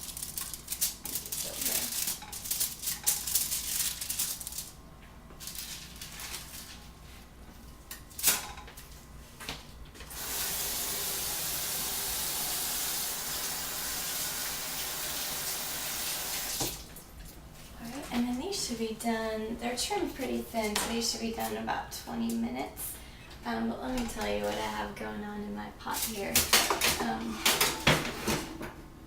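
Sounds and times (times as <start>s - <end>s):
faucet running into sink: 10.1s - 16.8s.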